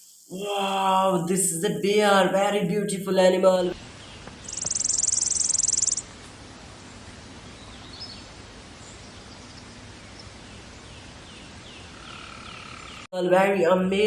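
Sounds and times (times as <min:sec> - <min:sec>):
outdoor background hiss: 0:00.0 - 0:14.0
faint chirp: 0:04.0 - 0:06.0
pulsing insect trill: 0:04.4 - 0:06.1.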